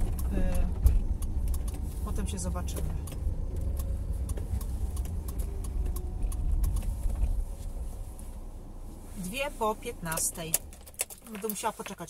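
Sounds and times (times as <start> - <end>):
faint clicks: 0.0 - 7.4
car engine idling: 0.0 - 12.0.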